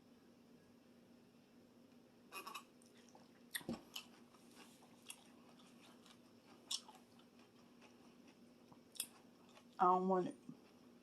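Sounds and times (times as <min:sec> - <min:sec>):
quiet chewing: 0:02.4 - 0:11.0.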